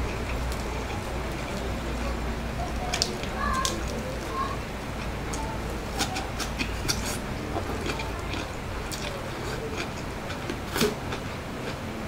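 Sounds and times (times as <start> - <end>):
person chewing with wet smacks: 0.0 - 1.7, 5.0 - 11.8.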